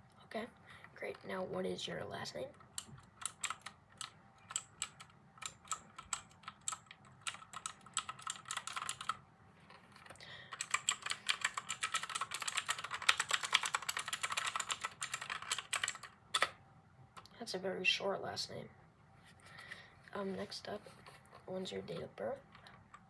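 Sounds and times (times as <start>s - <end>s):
computer keyboard typing: 2.5s - 9.2s, 10.5s - 16.6s.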